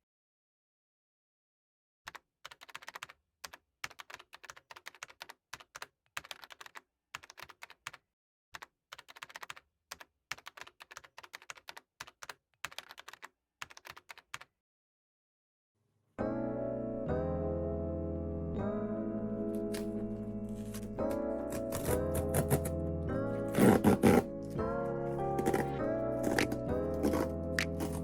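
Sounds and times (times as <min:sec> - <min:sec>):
computer keyboard typing: 0:02.1 - 0:08.0, 0:08.6 - 0:14.5, 0:20.6 - 0:22.8, 0:23.5 - 0:24.3, 0:25.3 - 0:28.0
music: 0:16.2 - 0:28.0.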